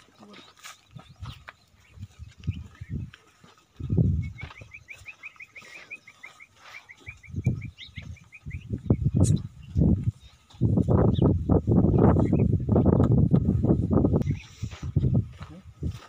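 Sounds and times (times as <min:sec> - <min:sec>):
small bird chirping: 0:00.0 - 0:03.2, 0:03.8 - 0:12.6.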